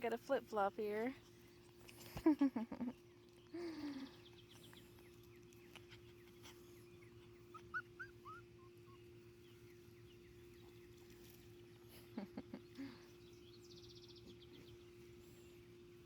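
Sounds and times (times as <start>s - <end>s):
faint steady hum: 0.0s - 16.0s
puppy whining: 5.5s - 9.2s
faint high chirps: 7.0s - 11.4s.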